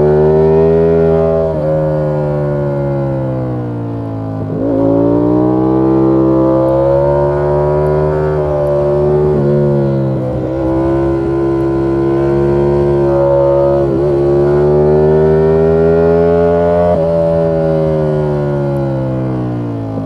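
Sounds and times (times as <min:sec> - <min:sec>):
motorcycle engine pulling under load: 0:00.0 - 0:20.0.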